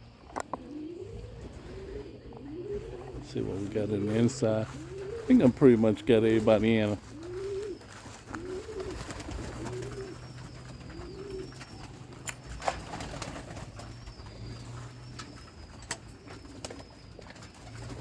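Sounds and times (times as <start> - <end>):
pigeons cooing: 0.0 - 18.0
sharp clicks: 12.2 - 12.8.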